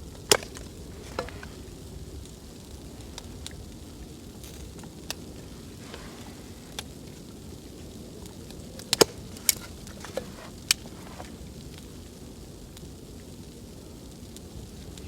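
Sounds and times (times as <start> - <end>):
low fire rumble: 0.0 - 15.0
wood fire crackling: 0.0 - 15.0
sharp pops: 8.8 - 11.3.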